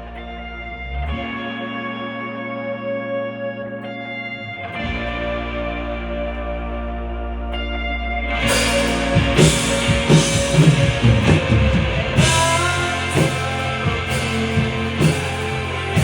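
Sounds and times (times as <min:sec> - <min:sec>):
electric guitar chords: 0:00.0 - 0:16.0
drum kit hits and cymbal crashes: 0:08.5 - 0:16.0.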